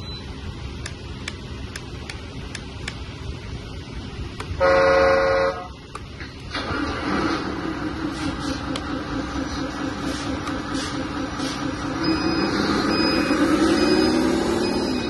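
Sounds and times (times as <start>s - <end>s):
toy horn toot: 4.6s - 5.8s
electric motor and hydraulic pump: 6.5s - 15.0s.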